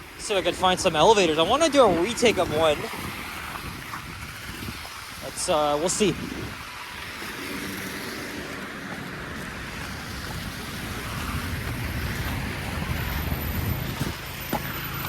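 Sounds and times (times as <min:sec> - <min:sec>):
tyres hissing on wet road: 0:00.0 - 0:15.0
passing vehicle engine rumble: 0:06.9 - 0:15.0.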